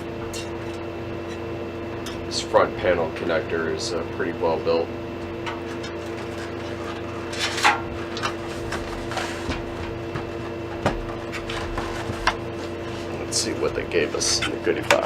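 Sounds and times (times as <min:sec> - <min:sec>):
steady background hum: 0:00.0 - 0:15.0
hands rustling hardware box: 0:06.2 - 0:13.6.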